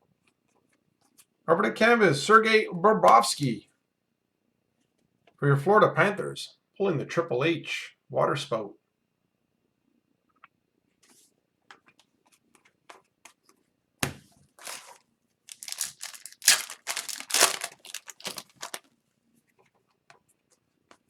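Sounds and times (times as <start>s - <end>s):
foil wrapper tearing and crinkling: 14.6s - 18.9s.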